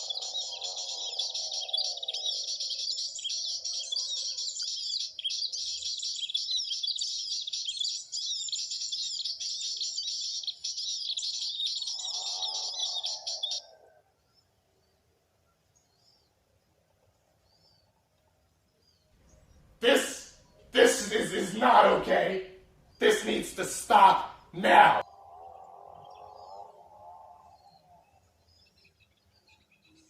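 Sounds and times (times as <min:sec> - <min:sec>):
high-pitched bird chirping: 0:00.0 - 0:13.7
lower warbling bird call: 0:24.8 - 0:28.3.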